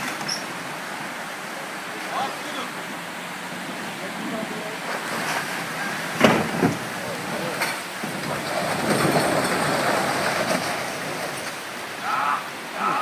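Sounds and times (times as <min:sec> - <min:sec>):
pickup engine and tyres off-road: 0:03.1 - 0:12.0
sharp knocks: 0:06.2 - 0:06.9.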